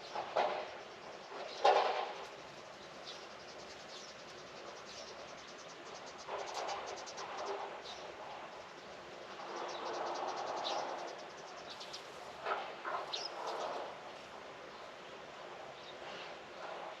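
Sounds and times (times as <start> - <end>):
steady background hiss: 0.0 - 17.0
birds chirping and trilling: 13.0 - 13.9.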